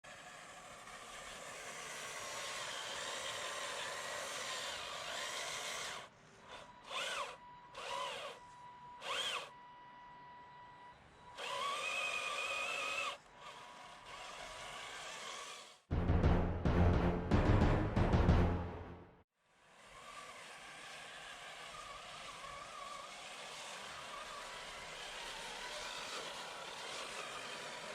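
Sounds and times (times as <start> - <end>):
toy truck electric motor whining: 0.0 - 15.9, 19.5 - 27.9
loud music with heavy drums: 15.9 - 18.9.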